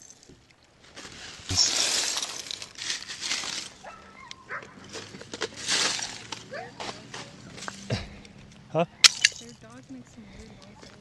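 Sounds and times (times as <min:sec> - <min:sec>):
lake ice shattering: 0:00.9 - 0:03.9, 0:04.9 - 0:06.5, 0:09.0 - 0:09.6.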